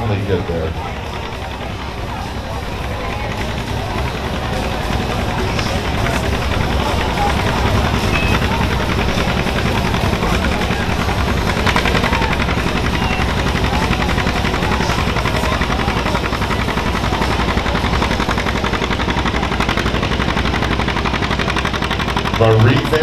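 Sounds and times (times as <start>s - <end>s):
tractor engine under full load: 0.0s - 23.0s.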